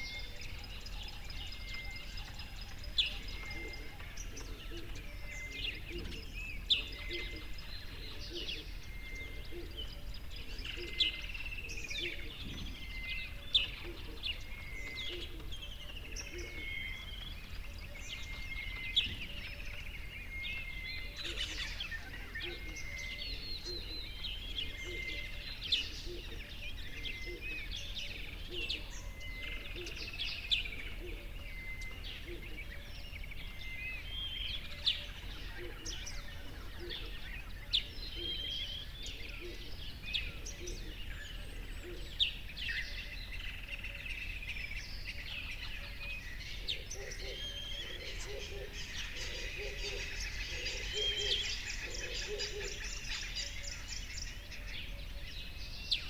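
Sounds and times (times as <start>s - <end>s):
birds singing and chirping: 0.0s - 56.0s.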